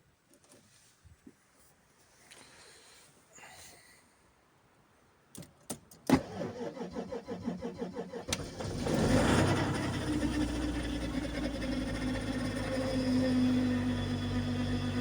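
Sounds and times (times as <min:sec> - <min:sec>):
diesel engine running: 0:08.3 - 0:15.0.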